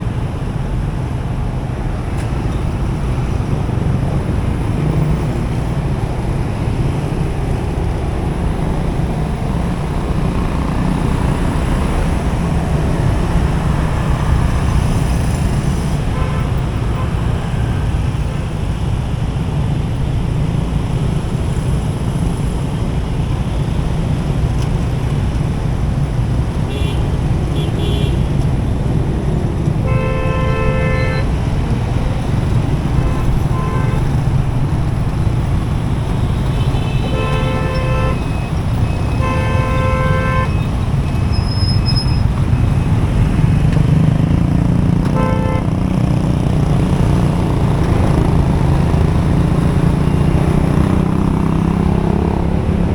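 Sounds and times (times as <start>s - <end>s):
traffic rumble: 0.0s - 52.9s
vehicle horns honking: 16.0s - 18.0s, 26.6s - 28.4s, 29.8s - 34.9s, 36.2s - 42.9s, 45.1s - 45.8s.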